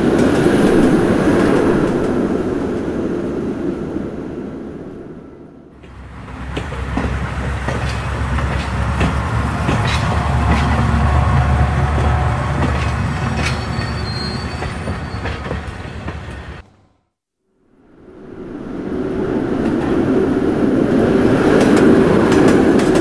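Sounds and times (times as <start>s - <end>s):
train passing rumble: 0.0s - 16.8s, 17.8s - 23.0s
wheels clicking over rail joints: 5.8s - 16.4s, 21.0s - 23.0s.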